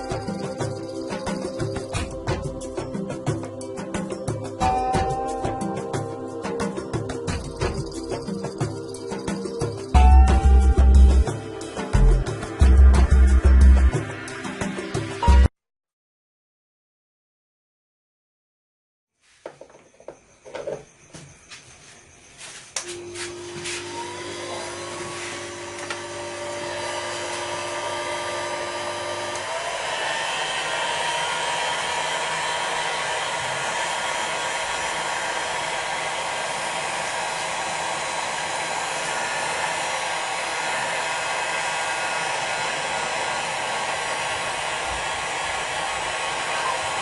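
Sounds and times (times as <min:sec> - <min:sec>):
hot-air blower fan whining: 0:00.0 - 0:05.6, 0:22.8 - 0:47.0.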